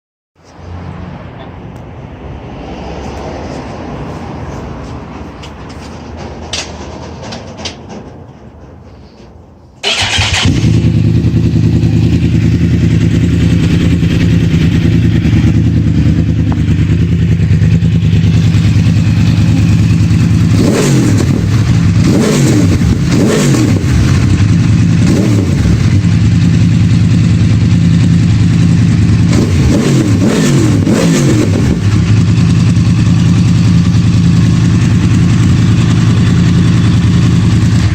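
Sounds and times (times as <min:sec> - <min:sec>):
motorcycle engine idling: 0:09.8 - 0:23.2, 0:23.8 - 0:29.5, 0:31.6 - 0:37.9
engine revving: 0:09.8 - 0:37.9.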